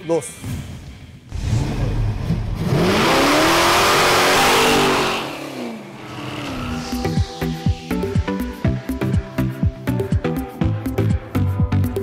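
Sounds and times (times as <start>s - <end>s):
car engine revving: 1.3s - 8.6s.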